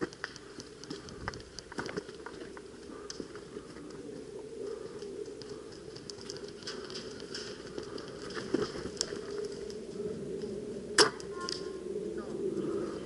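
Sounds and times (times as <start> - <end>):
soft clicks and ticks: 0.0 - 4.0
faint steady hum: 0.0 - 13.0.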